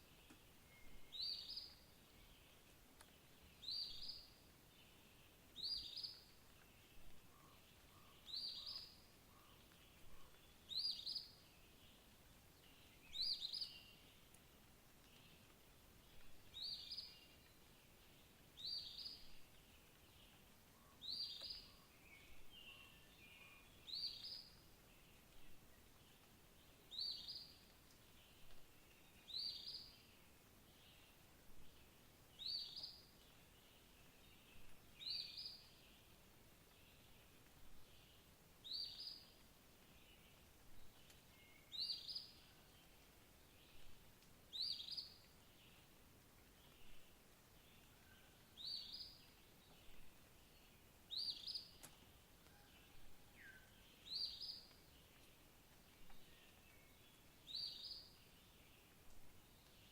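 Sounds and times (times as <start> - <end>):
faint calls of other birds: 16.2 - 36.2, 36.9 - 59.0.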